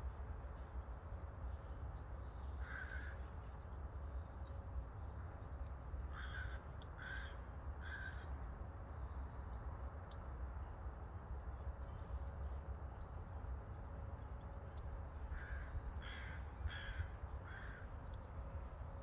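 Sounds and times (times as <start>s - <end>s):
steady low rumble: 9.0s - 19.0s.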